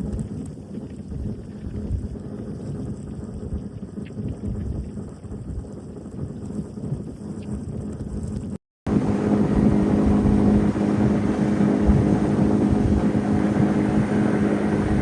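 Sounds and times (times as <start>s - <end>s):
boat motor droning: 8.9s - 15.0s
low rumbling noise: 8.9s - 15.0s.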